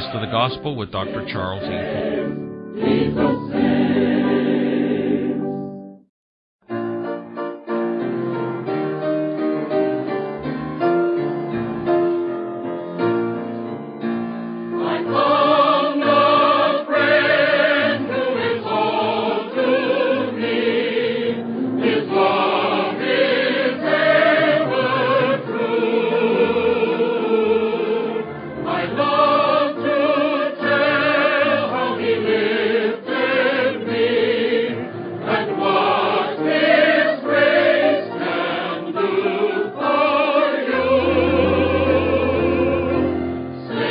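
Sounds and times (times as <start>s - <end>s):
choir singing a gospel hymn: 0.0s - 5.7s, 14.6s - 43.9s
piano playing: 0.0s - 43.9s.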